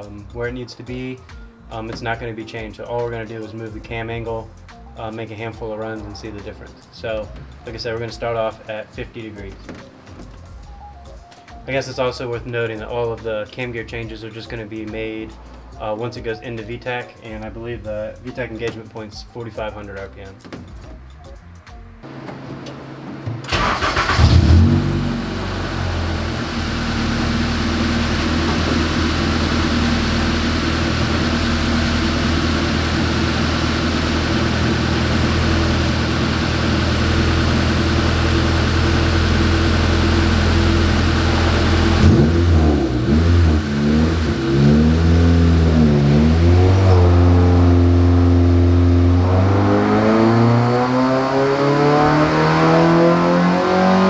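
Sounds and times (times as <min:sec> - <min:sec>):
car engine starting and idling: 0:22.0 - 0:54.0
engine revving: 0:23.0 - 0:54.0.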